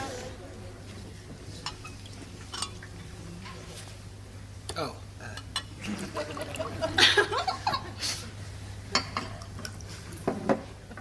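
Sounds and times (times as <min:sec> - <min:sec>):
low steady hum: 0:00.0 - 0:11.0
soft laughter: 0:05.8 - 0:08.0.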